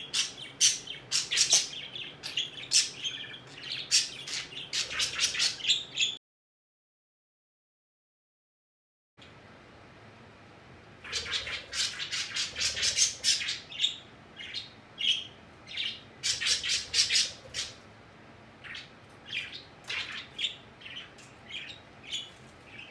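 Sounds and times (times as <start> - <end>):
pet birds squawking: 0.0 - 6.2, 11.0 - 17.9, 18.6 - 22.9.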